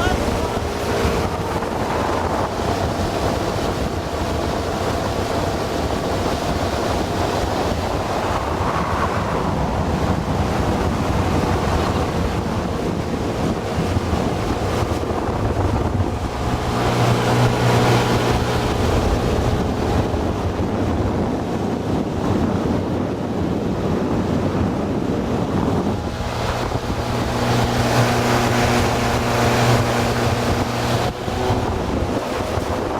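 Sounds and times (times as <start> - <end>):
outboard motor running: 0.0 - 32.9
water rushing past hull: 0.0 - 32.9
wind buffeting microphone: 0.0 - 32.9.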